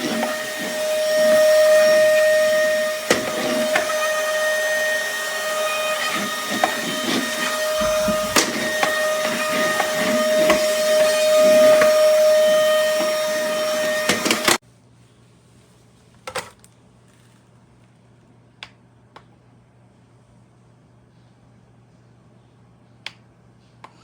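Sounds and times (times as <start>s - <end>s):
vacuum cleaner motor whine: 0.0s - 14.6s.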